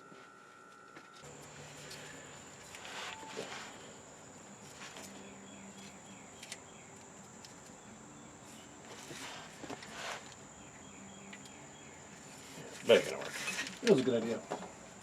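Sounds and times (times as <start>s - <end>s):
crickets chirping: 1.2s - 15.0s
clicks and rustles of hand work: 8.9s - 10.4s.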